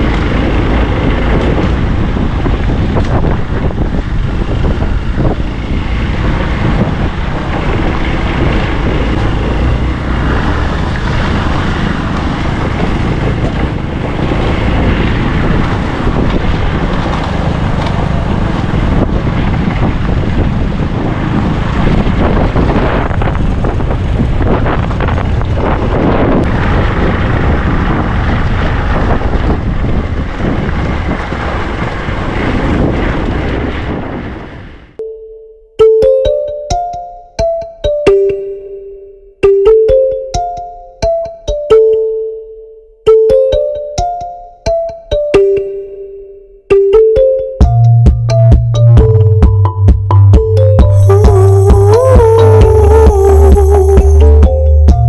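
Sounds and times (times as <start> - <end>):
motorbike engine: 0.0 - 25.8, 50.9 - 55.0
road noise: 0.0 - 35.0, 47.0 - 55.0
wind buffeting microphone: 0.0 - 35.0.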